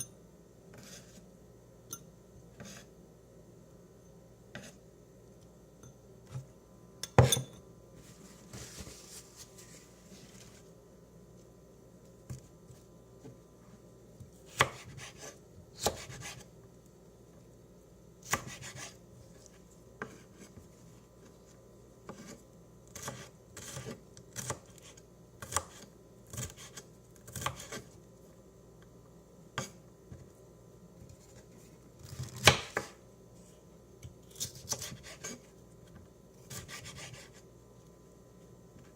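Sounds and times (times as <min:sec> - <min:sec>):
knife chopping food: 0:14.5 - 0:16.5, 0:18.2 - 0:19.0, 0:22.1 - 0:27.9, 0:32.0 - 0:33.0, 0:34.0 - 0:35.5, 0:36.5 - 0:37.4.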